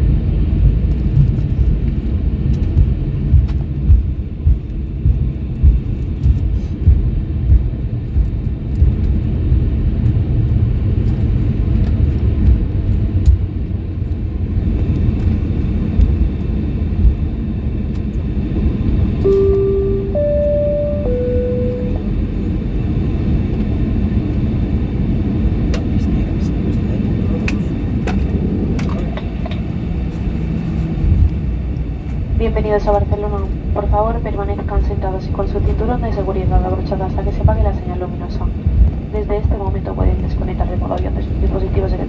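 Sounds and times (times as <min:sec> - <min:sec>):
airplane cabin rumble: 0:00.0 - 0:42.0
three-note cabin chime: 0:19.3 - 0:22.3.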